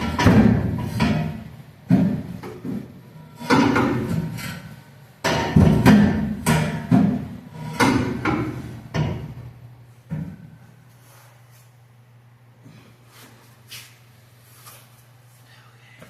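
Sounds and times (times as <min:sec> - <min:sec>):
hammer striking exhaust pipe: 0:00.0 - 0:02.7, 0:03.4 - 0:09.5.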